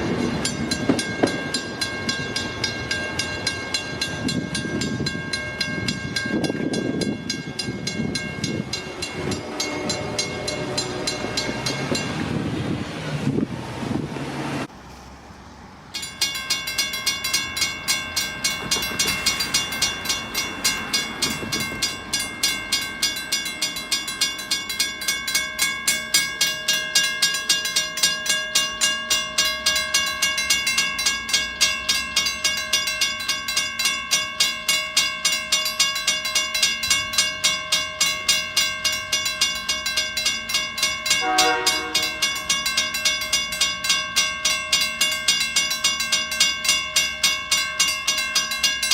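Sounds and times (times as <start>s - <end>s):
railroad crossing bell ringing: 0.0s - 12.5s, 15.9s - 48.9s
low horn-like tone: 41.2s - 42.2s.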